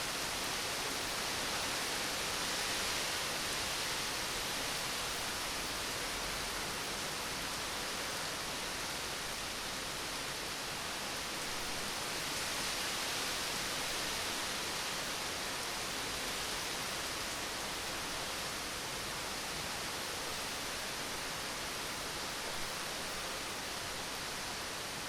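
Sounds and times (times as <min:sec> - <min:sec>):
steady rain hissing: 0:00.0 - 0:25.0.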